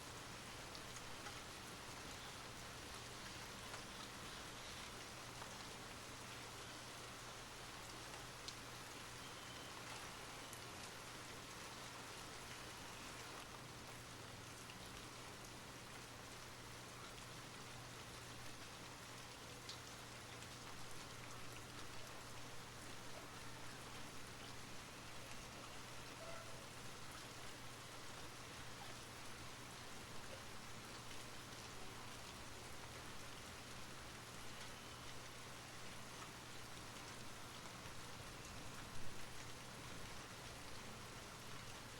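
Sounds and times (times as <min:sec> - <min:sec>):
steady rain falling: 0:00.0 - 0:41.9
raindrops ticking: 0:00.6 - 0:06.0, 0:18.1 - 0:23.2.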